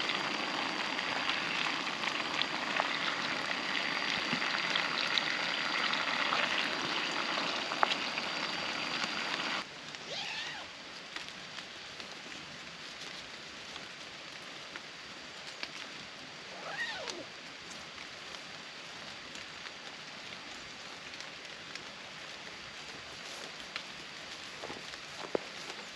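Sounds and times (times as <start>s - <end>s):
raindrops ticking: 0.0s - 9.7s
steady rain falling: 0.0s - 25.9s.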